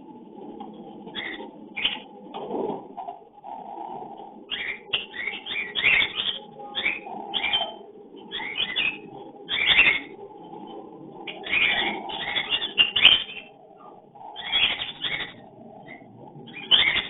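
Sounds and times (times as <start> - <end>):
steady low hum: 0.0 - 17.0
cockatiels chirping: 1.1 - 2.1, 4.5 - 10.1, 11.3 - 17.0.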